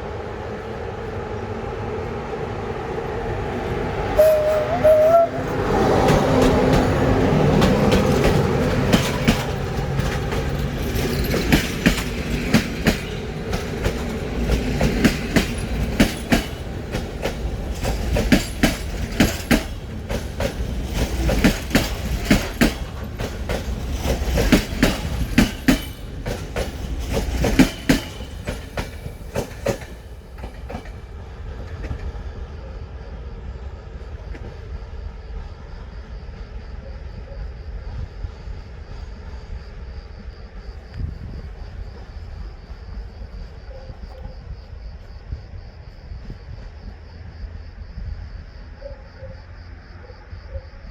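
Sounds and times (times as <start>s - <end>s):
locomotive running: 0.4s - 32.2s
train wheels clacking over rail joints: 4.2s - 32.2s.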